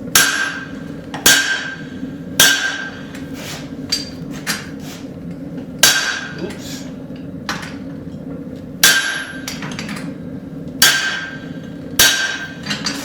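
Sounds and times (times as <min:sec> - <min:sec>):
hammer striking metal: 0:00.1 - 0:01.8, 0:02.4 - 0:03.1, 0:05.8 - 0:06.4, 0:08.8 - 0:09.6, 0:10.8 - 0:12.8.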